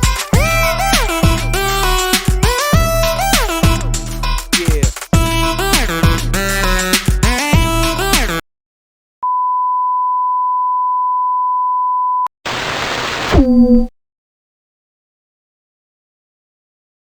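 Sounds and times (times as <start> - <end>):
music: 0.0 - 8.4
noisy burst dropping in pitch: 12.5 - 13.9.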